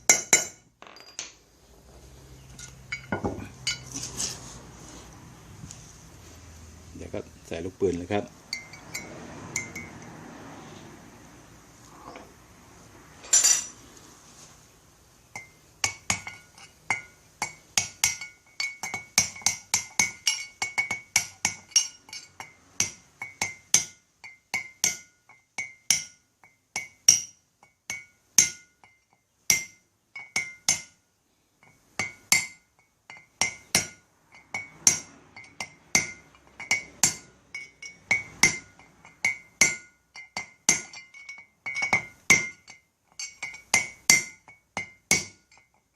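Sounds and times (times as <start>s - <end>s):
ringing metallic taps: 0.1s - 1.4s, 2.5s - 3.9s, 8.5s - 10.0s, 31.6s - 45.9s
hammer striking metal punch: 32.0s - 45.6s.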